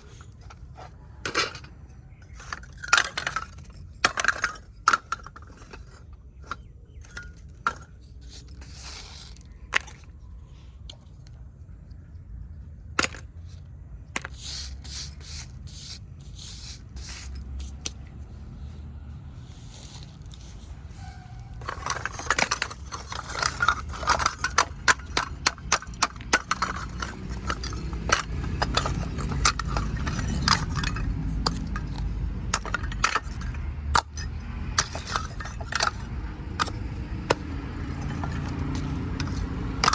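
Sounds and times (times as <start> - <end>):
clay cups cracking and crunching: 21.5 - 39.9.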